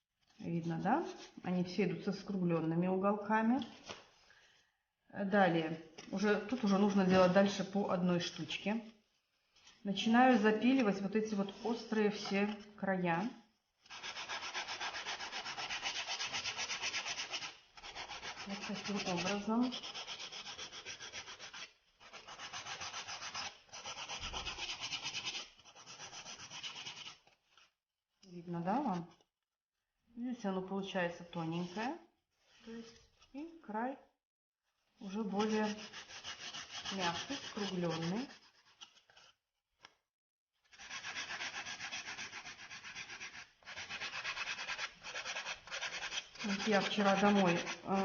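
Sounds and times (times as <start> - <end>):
nail file rasping on tile: 13.8 - 27.4, 35.0 - 39.3, 40.6 - 48.0.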